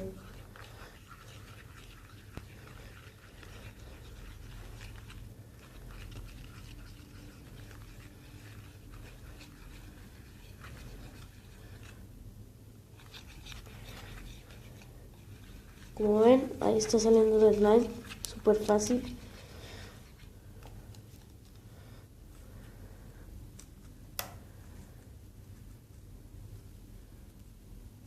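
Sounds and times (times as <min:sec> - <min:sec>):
slime stirring in a bowl: 0:00.0 - 0:21.6.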